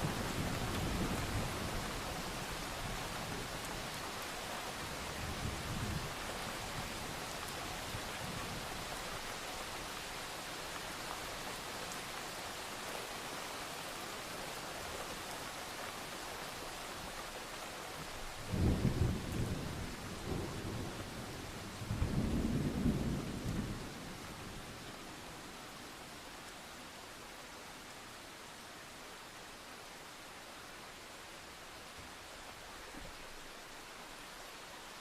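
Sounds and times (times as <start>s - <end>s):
steady rain hissing: 0.0s - 35.0s
distant thunder rumble: 18.4s - 24.7s.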